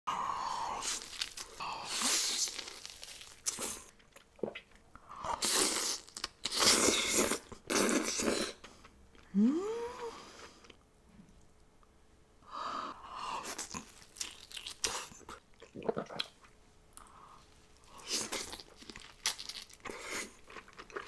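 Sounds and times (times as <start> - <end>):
biting and chewing food: 0.8 - 4.8, 17.9 - 21.0
person humming: 9.3 - 10.3.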